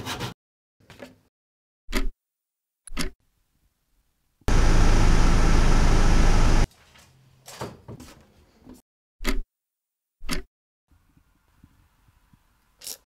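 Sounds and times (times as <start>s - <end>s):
electric fan humming: 4.5s - 6.7s.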